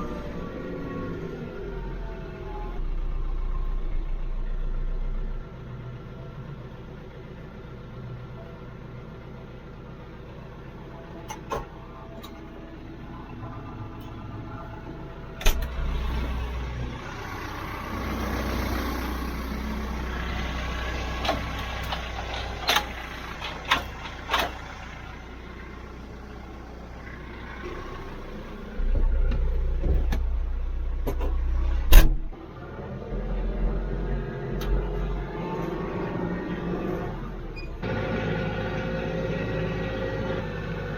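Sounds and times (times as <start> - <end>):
tractor diesel engine rumbling: 0.0 - 40.9.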